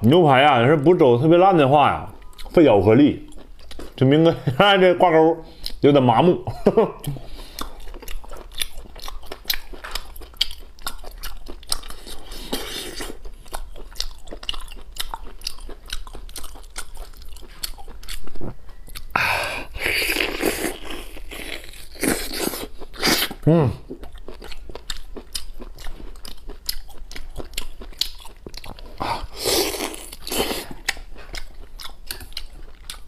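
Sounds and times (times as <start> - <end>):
biting and chewing meat: 6.7 - 33.0.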